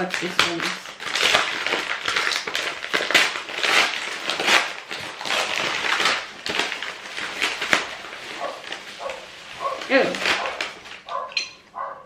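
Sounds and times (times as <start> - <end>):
gift wrapping tearing and crinkling: 0.0 - 11.4.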